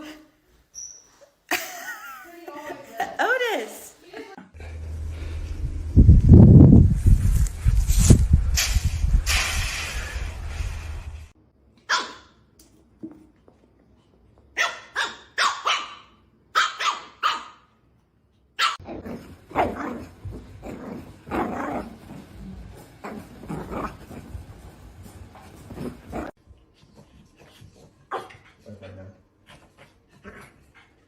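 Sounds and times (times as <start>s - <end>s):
dog barking: 11.9s - 12.3s, 14.6s - 17.7s, 18.6s - 18.8s.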